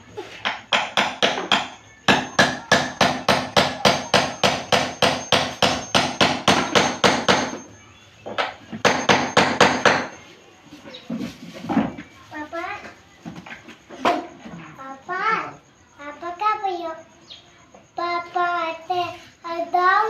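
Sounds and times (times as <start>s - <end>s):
hammer striking: 0.4s - 7.7s, 8.4s - 10.2s.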